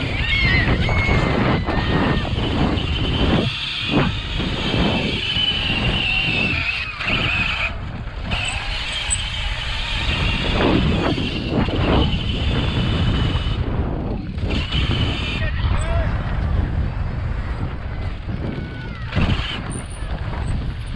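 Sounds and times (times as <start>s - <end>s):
vehicles with high whine: 0.0s - 20.9s
wind rumble on microphone: 0.0s - 20.9s.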